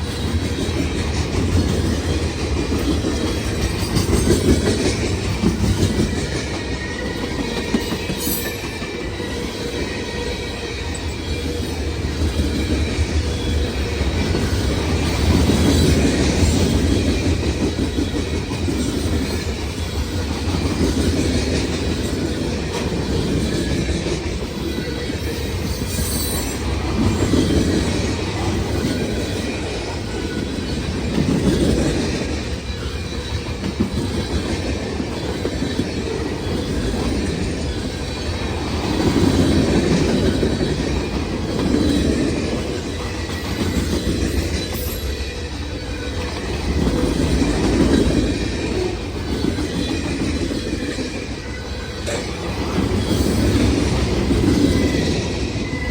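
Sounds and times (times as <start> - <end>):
freight train rolling past: 0.0 - 55.9
high wheel squeal: 24.6 - 26.8, 54.6 - 55.9.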